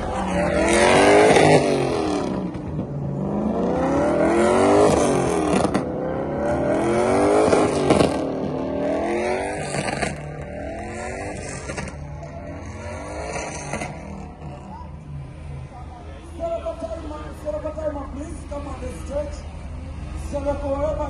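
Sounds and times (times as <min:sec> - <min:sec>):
car engine revving hard: 0:00.0 - 0:15.5.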